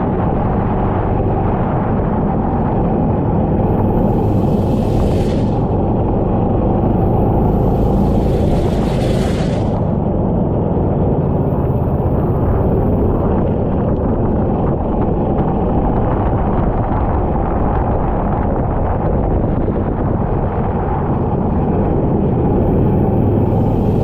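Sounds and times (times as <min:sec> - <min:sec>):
wind buffeting microphone: 0:00.0 - 0:24.0
go-kart engine roaring: 0:00.8 - 0:14.4, 0:21.1 - 0:24.0.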